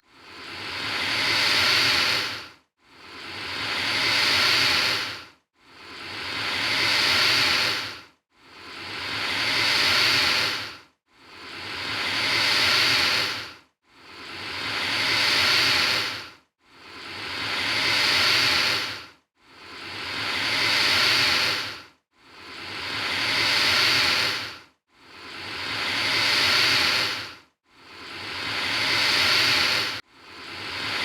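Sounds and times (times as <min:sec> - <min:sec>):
alligator hissing: 0:00.2 - 0:02.4, 0:03.1 - 0:08.0, 0:08.7 - 0:13.5, 0:14.1 - 0:16.2, 0:16.9 - 0:19.0, 0:19.6 - 0:21.8, 0:22.4 - 0:24.6, 0:25.2 - 0:31.0.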